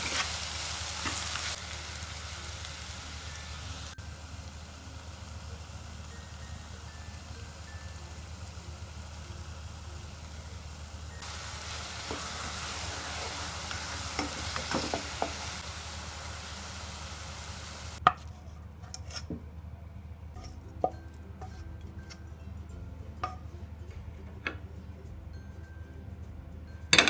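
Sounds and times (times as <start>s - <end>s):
food sizzling in a pan: 0.0s - 18.0s
utensil knocks: 13.2s - 15.6s.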